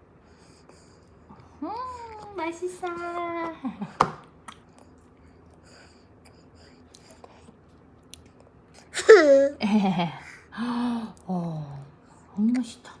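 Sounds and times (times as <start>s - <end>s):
baby babbling: 9.0s - 9.6s.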